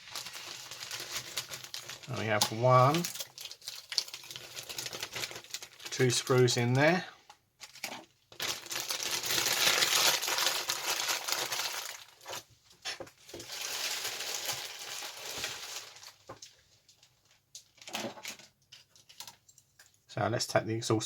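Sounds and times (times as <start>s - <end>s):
plastic bag crinkling: 0.0s - 7.0s, 7.6s - 12.5s, 13.2s - 18.0s.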